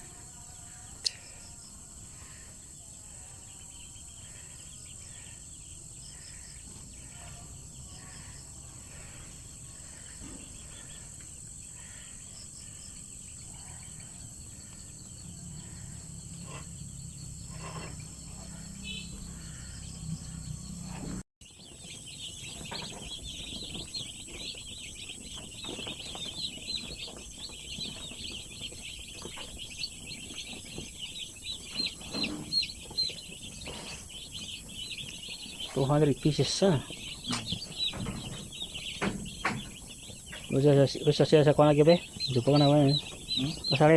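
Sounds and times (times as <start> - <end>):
high insect drone: 0.0 - 20.8
birds chirping: 0.0 - 43.9.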